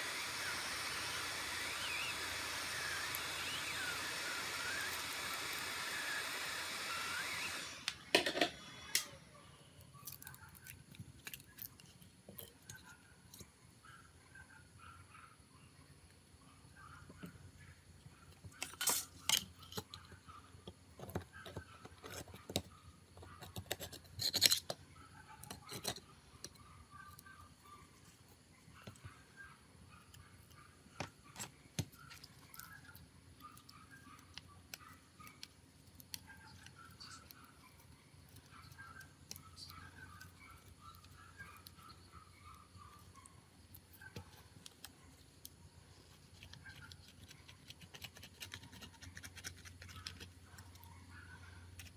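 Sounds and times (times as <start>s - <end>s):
tools clicking and scraping on phone: 18.3s - 27.3s, 42.9s - 50.9s.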